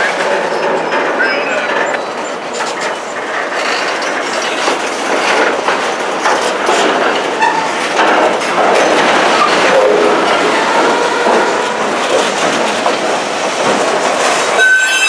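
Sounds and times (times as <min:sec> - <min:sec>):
train wheels clicking over rail joints: 0:00.0 - 0:15.0
train wheels squealing: 0:14.6 - 0:15.0.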